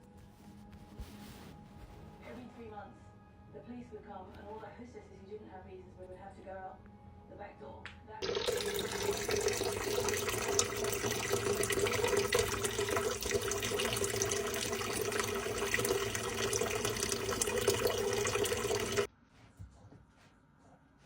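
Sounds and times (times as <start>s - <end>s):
tap water running into sink: 8.2s - 19.1s.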